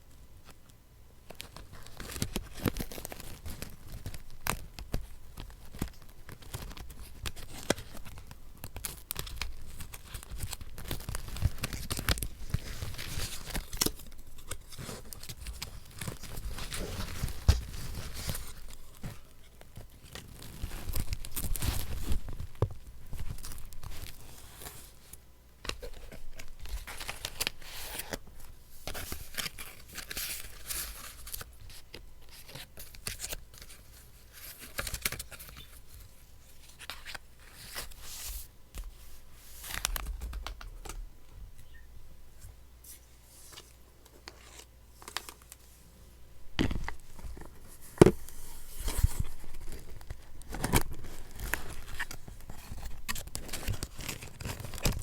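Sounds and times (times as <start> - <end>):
paper ripping and crinkling: 1.4 - 19.3, 19.9 - 25.1, 46.6 - 55.0.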